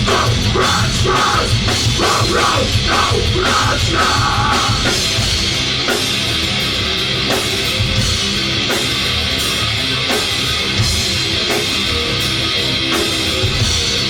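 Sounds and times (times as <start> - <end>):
heavy drum hits: 0.0 - 6.7
rock band playing: 0.0 - 14.0.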